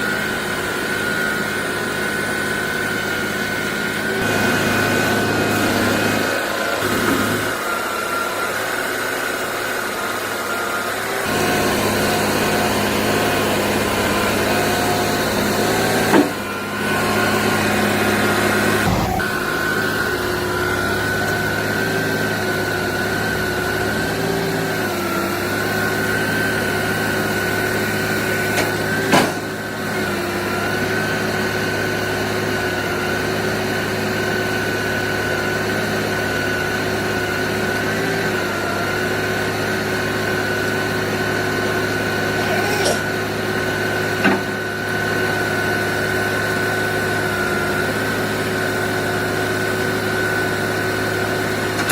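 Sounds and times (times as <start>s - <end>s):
diesel engine humming: 0.0s - 30.6s, 41.1s - 49.0s, 50.6s - 51.9s
steady high whine: 13.9s - 24.4s.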